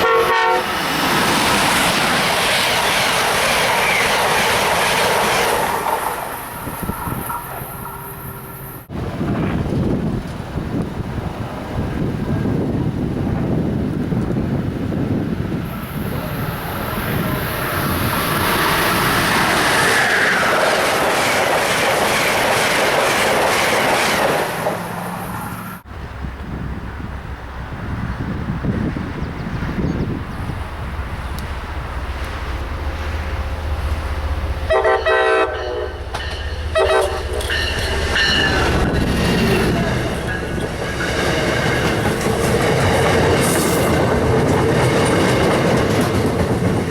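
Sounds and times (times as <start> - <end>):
train air horn blasts: 0.0 - 0.9, 33.0 - 39.0
train approaching: 0.0 - 46.9
wind buffeting microphone: 0.8 - 7.8, 8.8 - 24.7, 25.8 - 34.8, 36.0 - 46.9.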